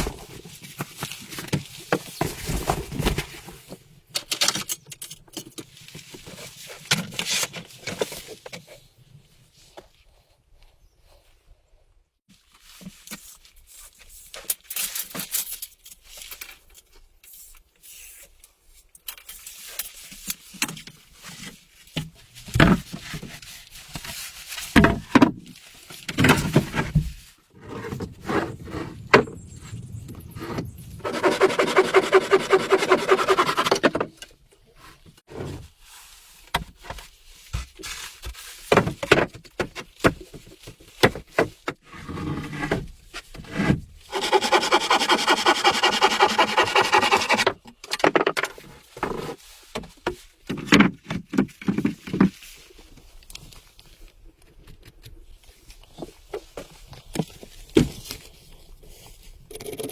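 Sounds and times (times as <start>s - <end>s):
rasping strokes on wood: 31.0s - 33.8s, 44.1s - 47.5s.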